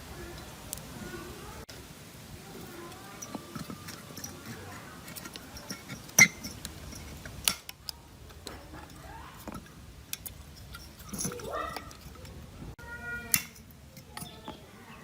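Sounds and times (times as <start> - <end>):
metal tools clicking and clinking: 2.9 - 12.5, 13.3 - 14.6.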